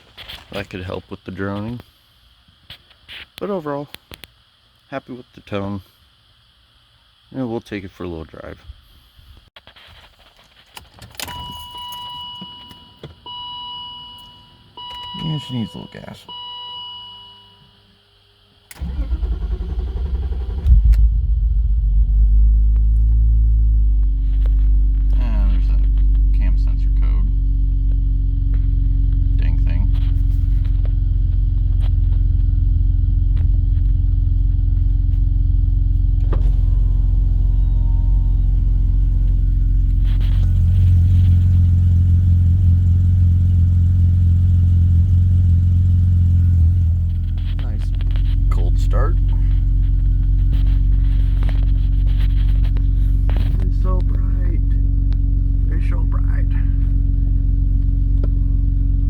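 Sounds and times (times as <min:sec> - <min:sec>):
car engine cranking on starter: 0:18.7 - 0:21.5, 0:36.1 - 0:54.2
car engine idling: 0:18.7 - 0:59.0.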